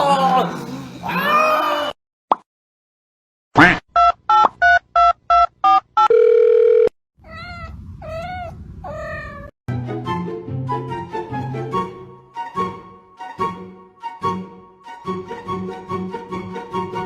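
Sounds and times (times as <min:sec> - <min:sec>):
long steady phone tone: 0:06.0 - 0:07.0
cat meowing: 0:07.2 - 0:09.5.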